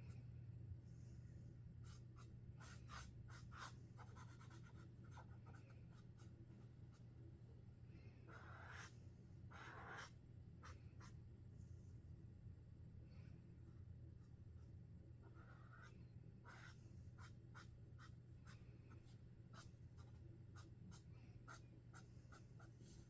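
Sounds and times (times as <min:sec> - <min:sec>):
marker drawing on paper: 0:08.3 - 0:08.9, 0:09.5 - 0:11.1, 0:15.3 - 0:22.0.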